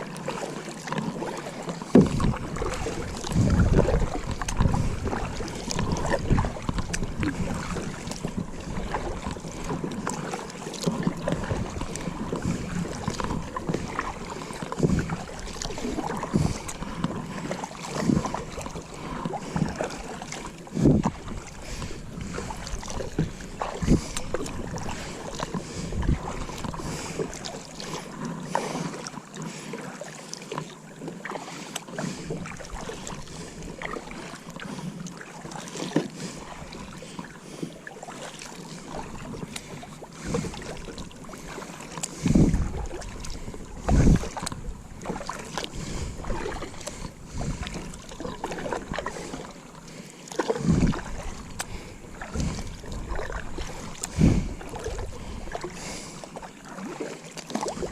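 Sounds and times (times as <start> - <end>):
water around kayak: 0.0 - 57.9
knocks and splashes: 0.2 - 28.9, 33.8 - 49.5, 50.3 - 56.1
wind on microphone: 2.0 - 9.5, 11.0 - 17.0, 20.7 - 27.0, 42.2 - 49.0, 50.6 - 55.7.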